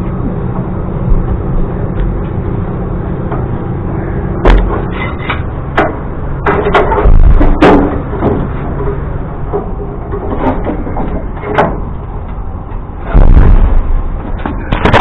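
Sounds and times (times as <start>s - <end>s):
engine rumbling: 0.0s - 15.0s
metal knocks and clanks: 4.4s - 15.0s
loud low thump: 13.1s - 14.0s.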